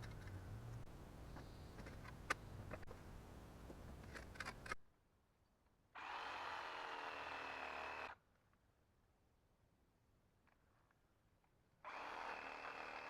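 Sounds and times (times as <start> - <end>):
power drill running: 6.0 - 8.2, 11.9 - 13.0.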